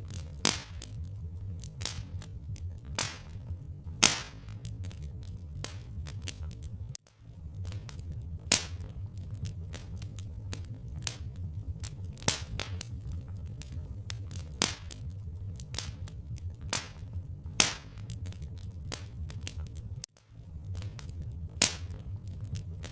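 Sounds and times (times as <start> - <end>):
low rumble: 0.0 - 22.9
wood fire crackling: 0.0 - 22.9.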